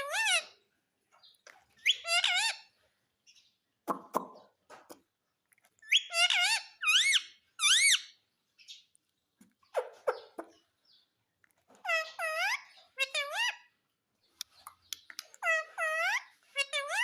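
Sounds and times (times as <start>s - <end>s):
parrot calling: 0.0s - 0.6s, 1.8s - 2.8s, 5.8s - 8.2s, 11.8s - 13.8s, 15.3s - 17.0s.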